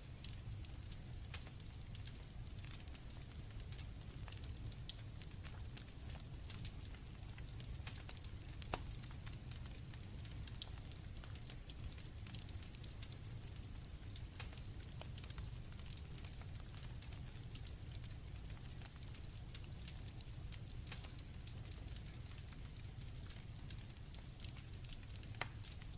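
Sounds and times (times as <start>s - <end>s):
campfire crackling and popping: 0.0s - 25.9s
crickets trilling: 0.0s - 25.9s.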